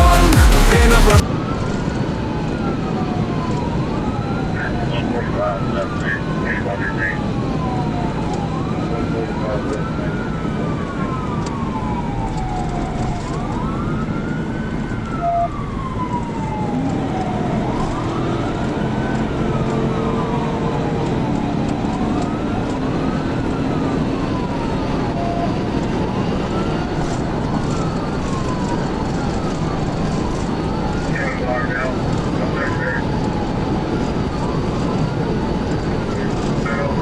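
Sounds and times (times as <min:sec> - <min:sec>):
police siren wailing: 0:00.0 - 0:37.0
second siren wailing: 0:00.0 - 0:37.0
car engine and road noise: 0:09.7 - 0:37.0.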